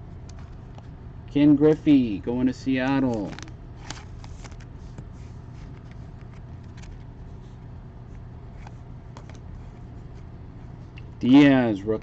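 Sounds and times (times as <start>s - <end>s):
steady low hum: 0.0s - 12.0s
trading cards flipped through: 3.0s - 7.1s.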